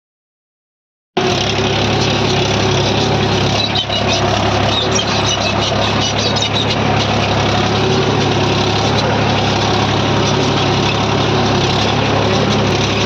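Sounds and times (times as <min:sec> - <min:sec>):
tractor diesel engine running: 0:01.2 - 0:13.0.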